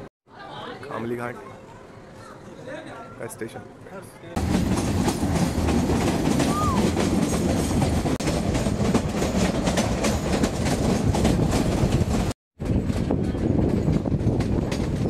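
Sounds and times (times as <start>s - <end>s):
wheels clickety-clack on track: 4.3s - 15.0s
train rumble: 4.4s - 15.0s.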